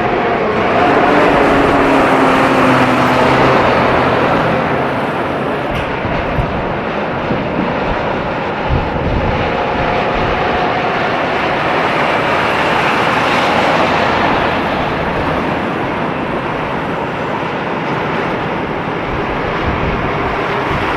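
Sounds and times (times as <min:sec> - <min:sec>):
truck driving past: 0:00.0 - 0:07.6, 0:11.2 - 0:19.8.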